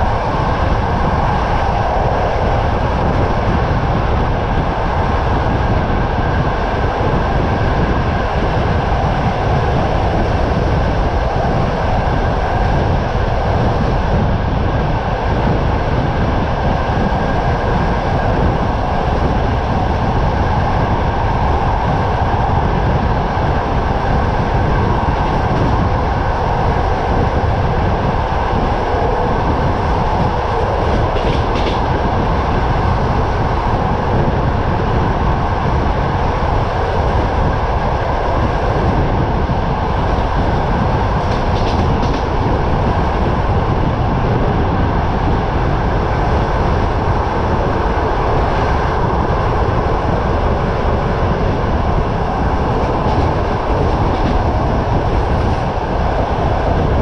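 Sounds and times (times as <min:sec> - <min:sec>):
train rumble and hum: 0:00.0 - 0:57.0
wind buffeting microphone: 0:00.0 - 0:57.0
wheels clattering on rails: 0:28.5 - 0:33.2, 0:39.8 - 0:43.8, 0:50.8 - 0:57.0.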